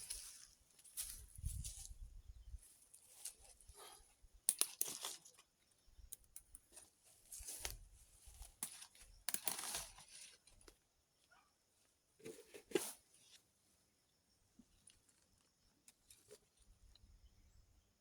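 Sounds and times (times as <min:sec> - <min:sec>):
stems snapping: 0:04.5 - 0:05.2, 0:08.6 - 0:10.0.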